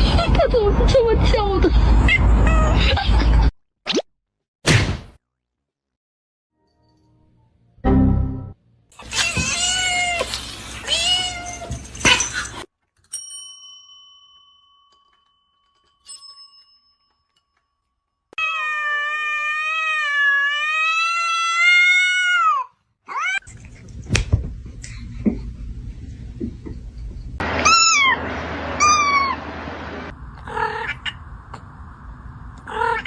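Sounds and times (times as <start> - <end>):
cats meowing: 9.1 - 12.2, 30.4 - 31.3, 32.6 - 33.0.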